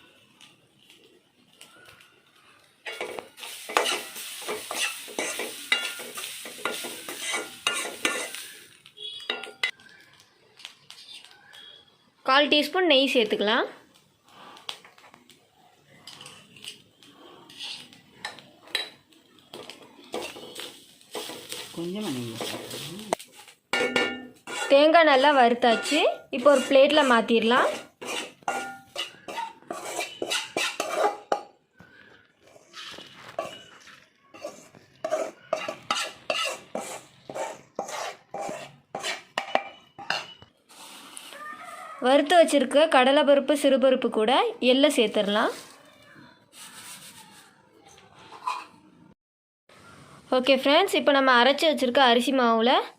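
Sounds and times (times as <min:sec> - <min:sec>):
metal spoon scraping a pan: 0:02.8 - 0:09.8, 0:16.0 - 0:31.6, 0:32.4 - 0:41.4, 0:48.2 - 0:48.9.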